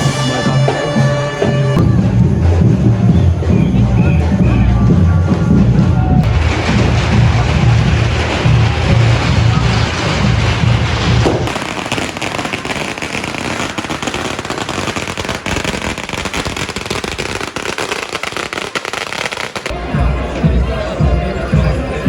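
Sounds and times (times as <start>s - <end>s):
heavy low pulsing beat: 0.0s - 11.5s, 19.7s - 22.0s
fireworks crackling and popping: 6.2s - 19.8s.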